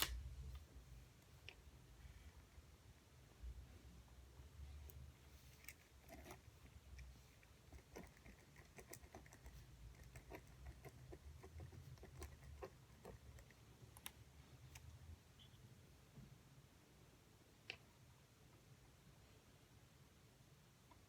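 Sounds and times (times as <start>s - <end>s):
faint clicking and tapping: 4.4s - 15.0s.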